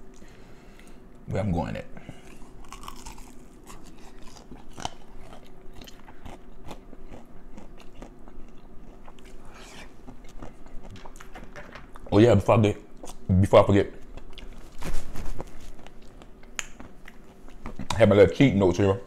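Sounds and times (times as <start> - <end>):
crunchy chewing: 2.1 - 12.1, 14.0 - 18.0.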